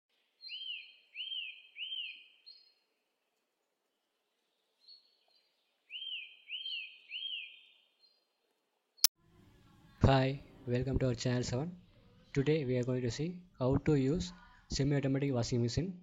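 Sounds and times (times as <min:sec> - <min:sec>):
bird chirps: 0:00.2 - 0:02.9, 0:04.6 - 0:08.3.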